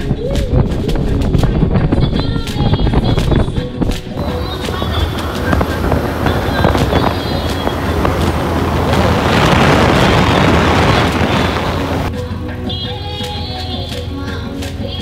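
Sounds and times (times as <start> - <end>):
wind rushing over microphone: 0.0 - 12.1
music: 0.0 - 15.0
motorcycle engine drone: 4.2 - 12.1.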